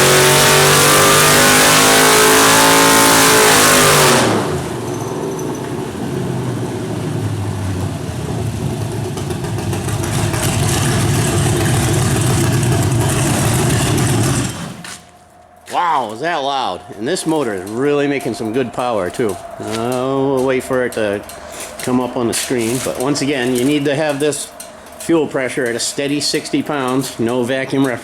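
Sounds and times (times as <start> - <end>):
car engine at full throttle: 0.0 - 15.1.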